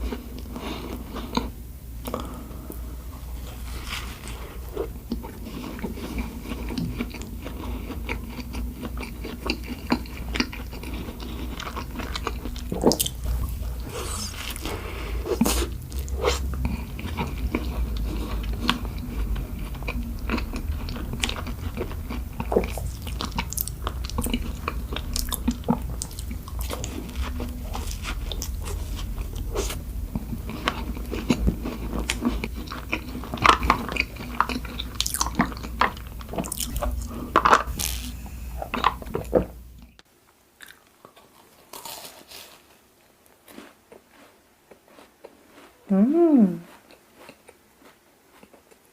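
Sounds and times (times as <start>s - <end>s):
biting and chewing: 3.8s - 39.9s, 40.6s - 42.7s.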